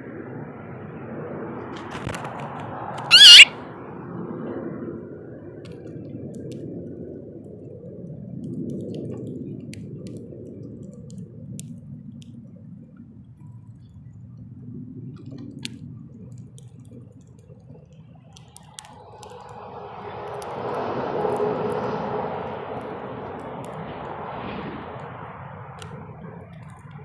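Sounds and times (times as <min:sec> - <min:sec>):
low steady rumble: 0:02.8 - 0:27.0
bird pecking seed: 0:03.0 - 0:03.5.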